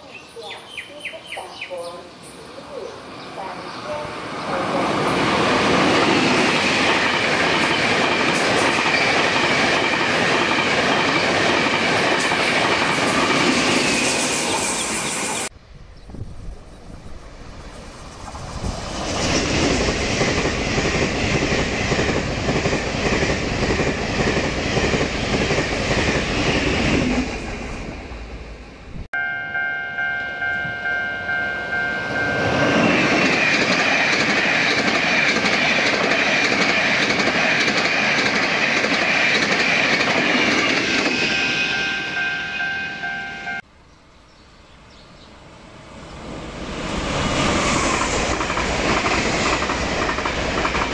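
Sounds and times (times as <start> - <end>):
train passing at high speed: 0.1 - 43.7, 44.8 - 50.9
wheels clacking over rail joints: 32.4 - 41.3, 47.5 - 50.9.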